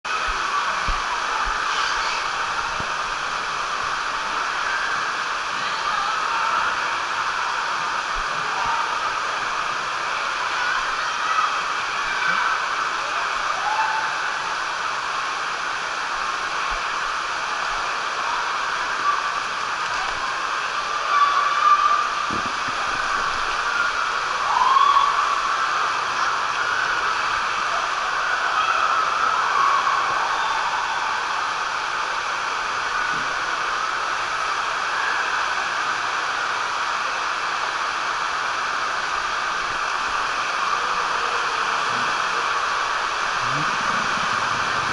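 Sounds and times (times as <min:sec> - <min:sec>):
water rushing through slide: 0:00.1 - 0:44.9
distant voices calling out: 0:41.5 - 0:44.9.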